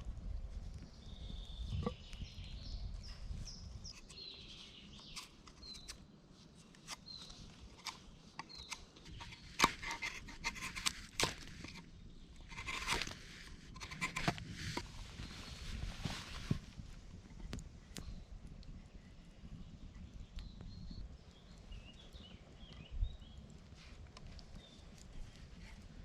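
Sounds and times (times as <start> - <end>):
bird chirping: 1.1 - 6.0
clicks and crunching scraping: 6.6 - 18.1.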